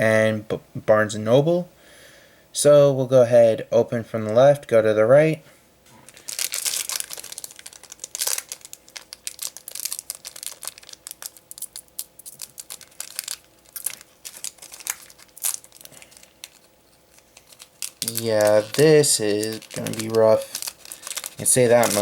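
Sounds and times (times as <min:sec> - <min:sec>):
wrapper crinkling and tearing: 0:06.1 - 0:22.0.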